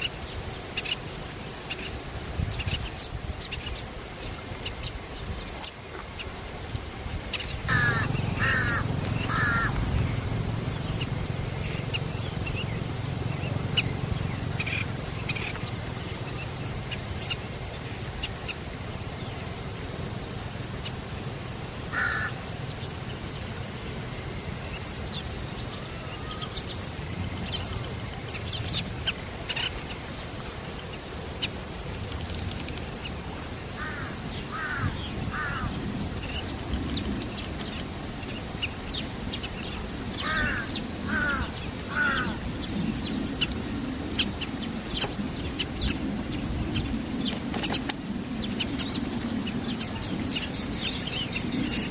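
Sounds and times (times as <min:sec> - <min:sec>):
low steady rumble: 0:07.2 - 0:30.4
harsh bird calls: 0:07.5 - 0:17.4, 0:21.9 - 0:22.4, 0:33.8 - 0:36.6, 0:39.5 - 0:43.5.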